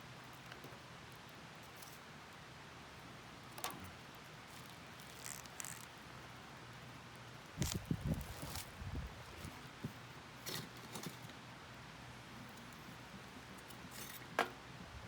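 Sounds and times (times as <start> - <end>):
fire crackle: 2.9 - 9.4.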